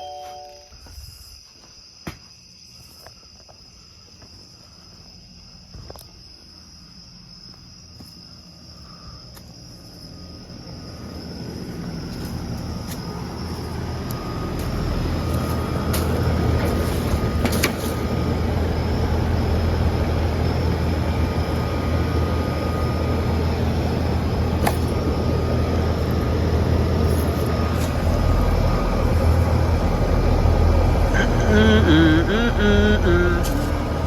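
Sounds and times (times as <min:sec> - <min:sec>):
doorbell chime: 0:00.0 - 0:00.8
crickets chirping: 0:00.0 - 0:34.0.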